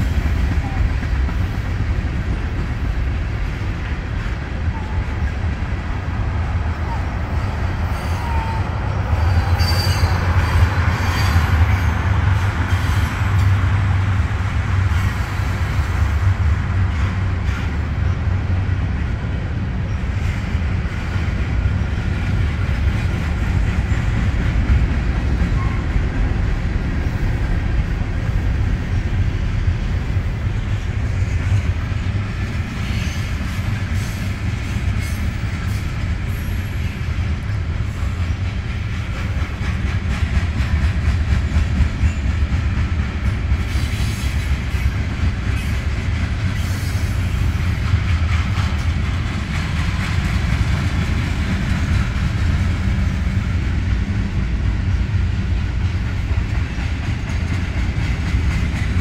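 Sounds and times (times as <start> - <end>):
freight train wheels rumbling: 0.0 - 59.0
wheel squeals: 9.2 - 10.2.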